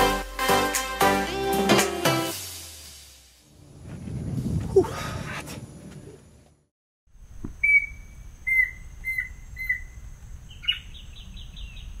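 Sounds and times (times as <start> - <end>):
bird whistling call: 7.6 - 11.8.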